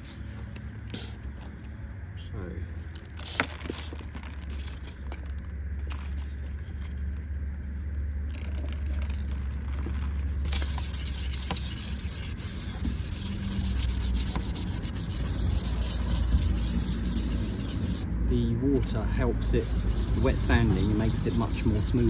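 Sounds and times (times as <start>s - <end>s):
wet sandpaper rubbing: 10.4s - 18.1s, 19.4s - 22.0s.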